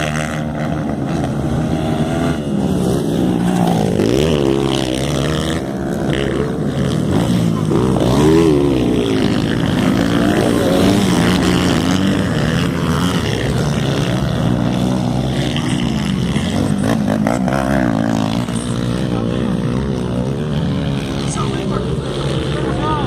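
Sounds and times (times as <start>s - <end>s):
motocross engines revving: 0.0s - 23.0s.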